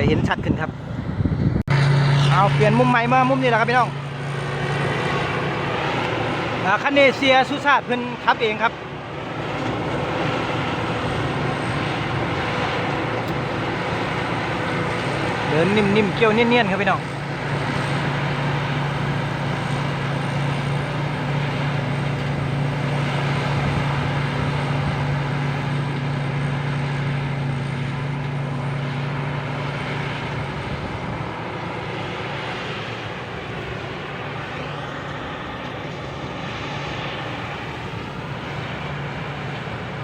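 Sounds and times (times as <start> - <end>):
diesel engine running under load: 0.0 - 40.0.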